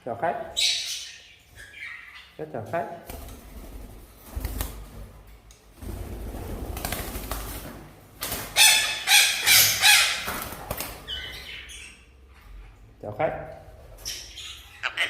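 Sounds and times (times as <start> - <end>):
parakeet squawking: 0.6 - 2.4, 8.6 - 10.3, 11.1 - 12.0, 14.0 - 15.0
soft parakeet calls: 0.6 - 2.4.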